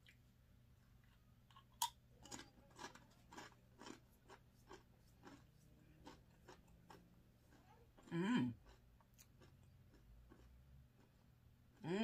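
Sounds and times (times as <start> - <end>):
chewing crunchy chip: 1.5 - 11.9.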